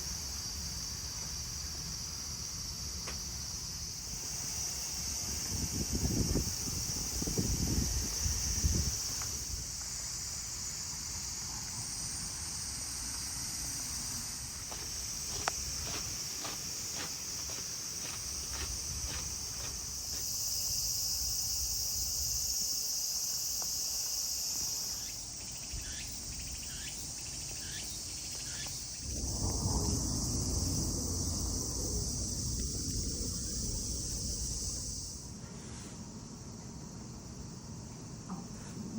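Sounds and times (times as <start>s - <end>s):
cicadas buzzing: 0.0s - 38.9s
low rumbling noise: 29.0s - 35.4s.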